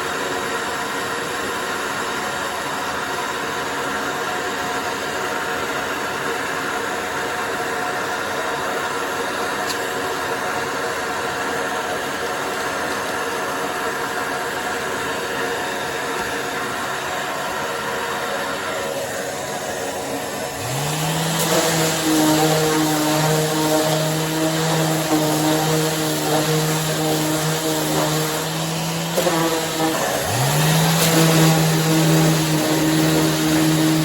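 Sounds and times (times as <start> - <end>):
motor spinning up with whine: 7.6 - 34.0
orbital sander whirring: 11.4 - 34.0.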